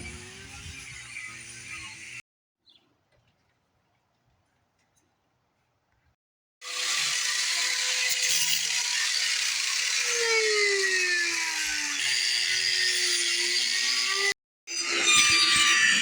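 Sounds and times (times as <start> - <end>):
angle grinder cutting: 0.0 - 2.2, 6.6 - 16.0.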